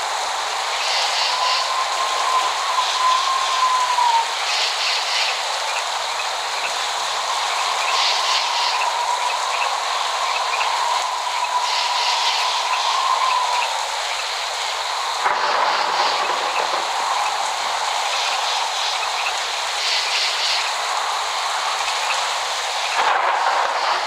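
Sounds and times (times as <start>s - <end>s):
steady rain: 0.0s - 24.0s
thin whistling tone: 1.3s - 4.2s.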